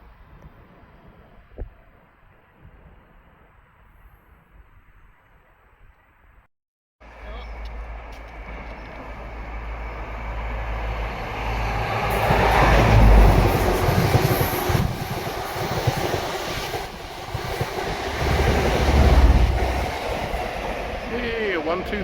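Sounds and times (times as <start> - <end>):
train passing with wheel noise: 7.1 - 22.0.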